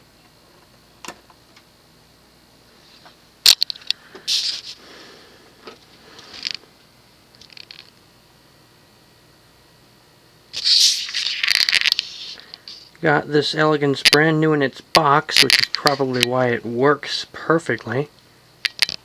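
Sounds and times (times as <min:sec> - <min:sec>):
scraping rustling handling noises: 0:04.3 - 0:05.0
scattered clicks: 0:15.3 - 0:16.4.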